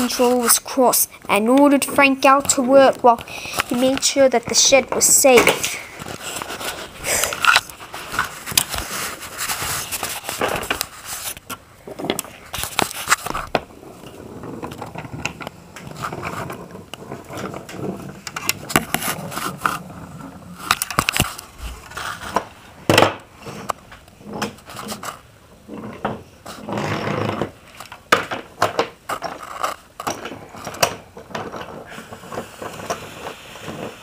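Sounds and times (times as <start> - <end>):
toy train rolling on track: 29.2 - 34.0.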